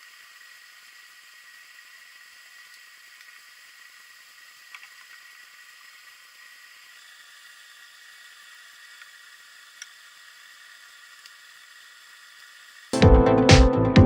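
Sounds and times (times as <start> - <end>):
faint steady hiss: 0.0 - 12.9
faint ticks: 2.5 - 3.5, 4.5 - 5.9, 9.8 - 10.0.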